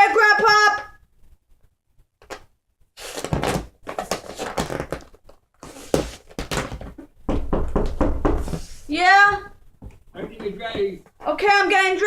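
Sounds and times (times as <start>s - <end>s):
dull thuds and knocks: 6.4s - 8.6s.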